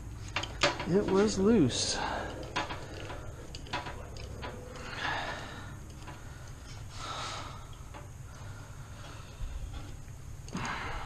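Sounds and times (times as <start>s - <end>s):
hand tools and metal parts clicking: 0.0s - 6.9s
soft rushing sounds: 0.8s - 7.6s.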